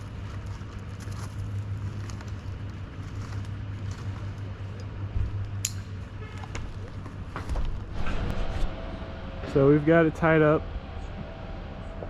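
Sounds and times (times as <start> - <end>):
truck engine idling: 6.7 - 12.0.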